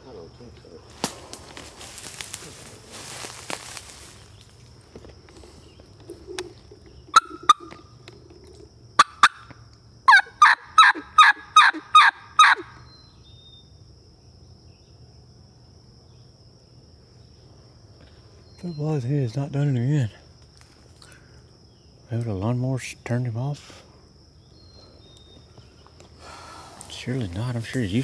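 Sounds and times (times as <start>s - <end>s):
faint high insect hum: 0.0s - 28.0s
turkey call clucks and yelps: 7.1s - 7.9s, 9.0s - 9.5s, 10.1s - 12.9s.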